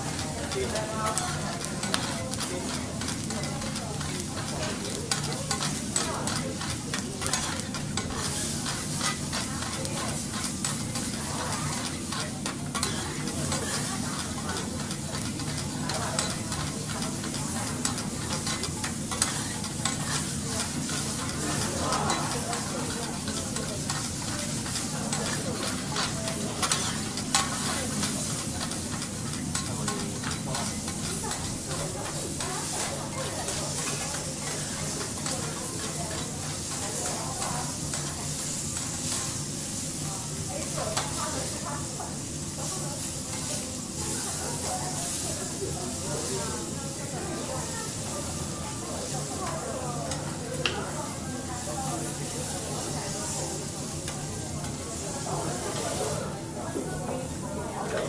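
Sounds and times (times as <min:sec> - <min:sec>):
metal spatulas clicking and scraping: 0:00.0 - 0:39.6, 0:40.6 - 0:45.3, 0:50.0 - 0:50.9
food sizzling on a griddle: 0:00.0 - 0:58.0.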